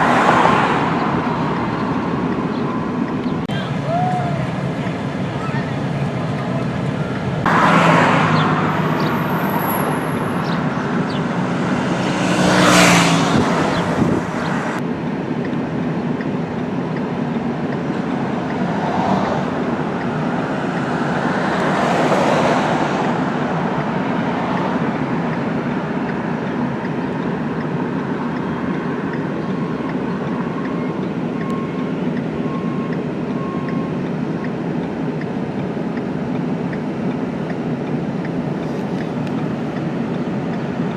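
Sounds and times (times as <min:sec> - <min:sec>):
road traffic noise: 0:00.0 - 0:40.9
vehicles passing: 0:00.0 - 0:40.9.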